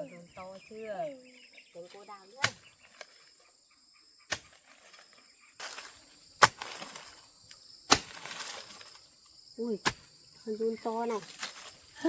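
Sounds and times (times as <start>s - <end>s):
digging tool thudding into soil: 2.4s - 2.7s, 4.3s - 4.8s, 5.6s - 7.2s, 7.9s - 9.0s, 9.8s - 10.1s
loose earth rustling: 4.3s - 12.0s.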